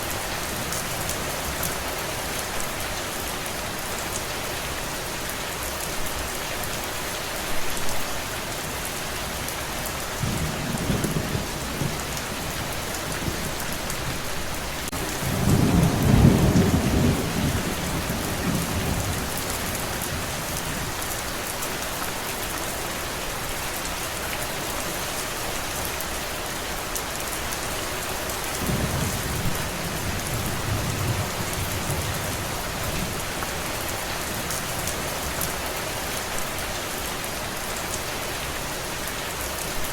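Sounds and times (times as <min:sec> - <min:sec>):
steady rain: 0:00.0 - 0:39.9
rolling thunder: 0:14.9 - 0:21.0, 0:28.6 - 0:33.2.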